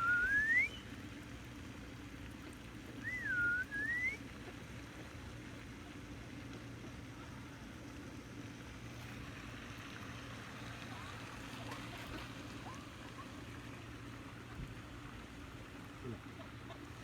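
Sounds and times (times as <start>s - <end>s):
whistled call: 0.0s - 1.0s, 3.0s - 4.2s.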